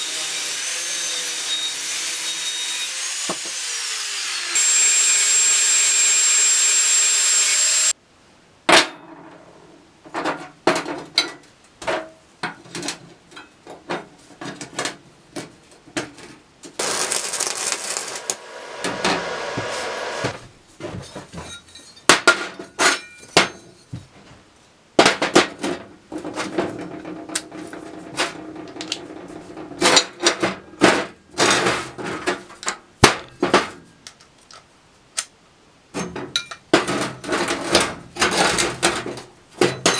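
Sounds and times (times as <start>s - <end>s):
power tool whining: 0.0s - 7.9s, 16.8s - 20.4s.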